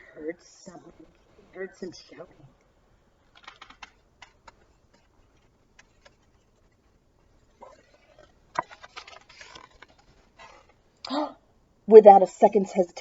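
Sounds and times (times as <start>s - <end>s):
page rustling: 3.3s - 10.8s
page turning click: 8.5s - 10.7s.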